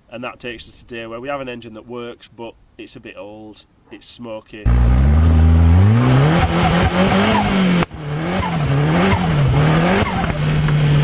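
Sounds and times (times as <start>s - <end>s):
car engine revving: 4.7s - 11.0s.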